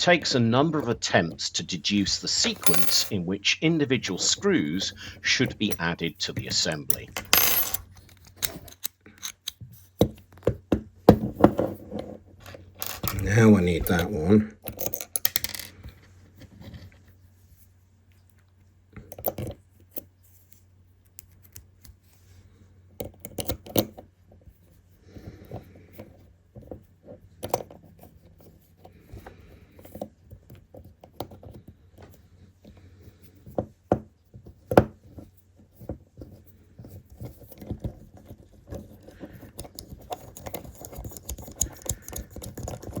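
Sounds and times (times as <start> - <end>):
tools and parts clicking and scraping: 2.0 - 3.3, 4.0 - 16.9, 19.0 - 22.1, 23.0 - 24.1, 35.0 - 43.0.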